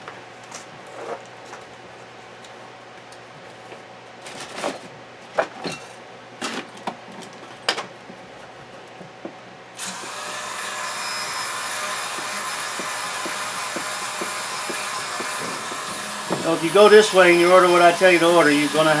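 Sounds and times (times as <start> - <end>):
rotary tool whirring: 9.8 - 19.0.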